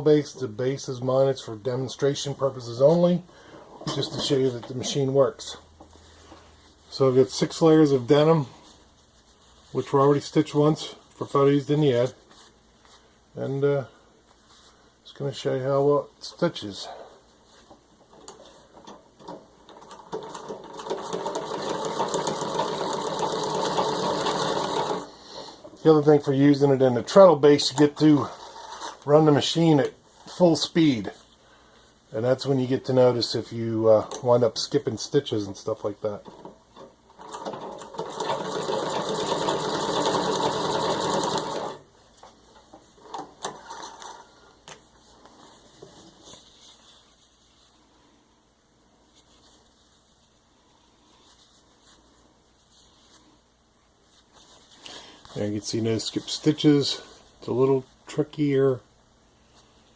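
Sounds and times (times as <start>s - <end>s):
sewing machine clicks: 18.8s - 25.1s, 37.2s - 41.8s
sewing machine needle clatter: 18.8s - 25.1s, 37.2s - 41.8s.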